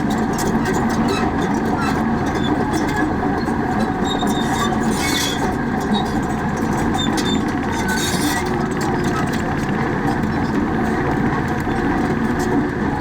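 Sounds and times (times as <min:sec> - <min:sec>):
high metallic squeaks: 0:03.9 - 0:06.2.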